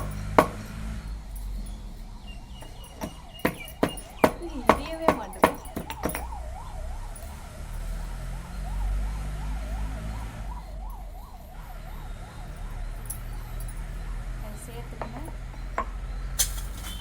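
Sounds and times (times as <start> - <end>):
sharp knocks: 0.0 - 0.8
siren wailing: 4.2 - 17.0.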